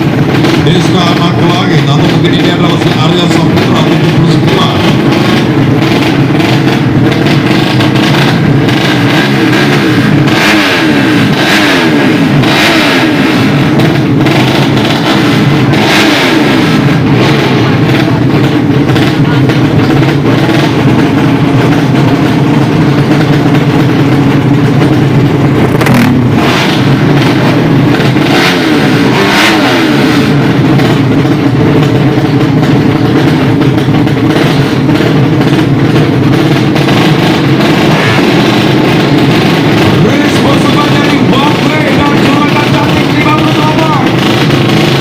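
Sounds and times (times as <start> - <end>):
motorcycle engine revving: 0.0 - 45.0
motorcycle engines running: 0.0 - 45.0.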